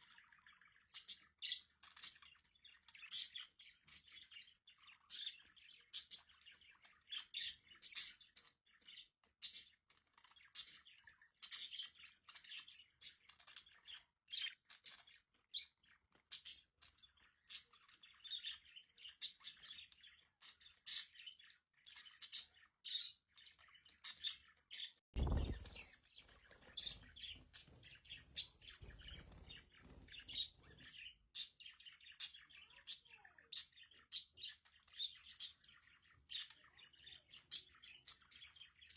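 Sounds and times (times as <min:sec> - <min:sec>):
low thump: 0:25.2 - 0:25.8.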